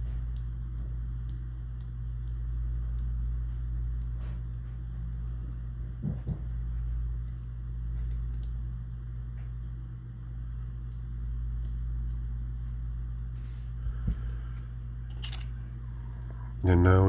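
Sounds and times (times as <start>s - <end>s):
low hum: 0.0s - 17.0s
soft knocks: 6.0s - 6.6s.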